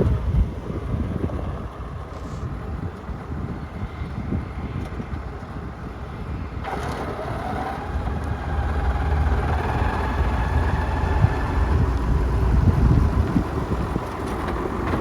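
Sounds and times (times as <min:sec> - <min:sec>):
engine whine: 0:00.0 - 0:15.0
tractor diesel engine running: 0:06.6 - 0:15.0.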